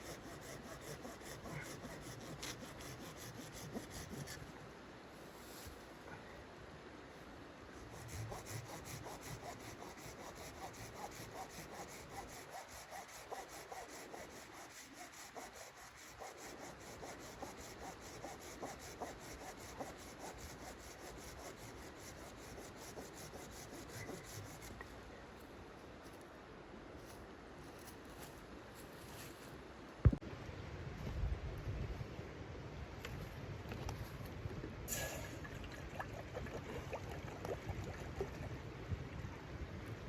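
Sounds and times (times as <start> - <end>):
hand saw cutting wood: 0.0 - 4.4, 7.9 - 24.8.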